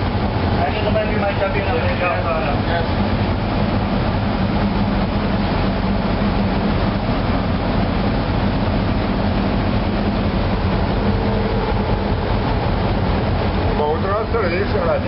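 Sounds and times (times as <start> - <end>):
marine diesel engine drone: 0.0 - 15.0
faint higher tone: 10.5 - 12.4.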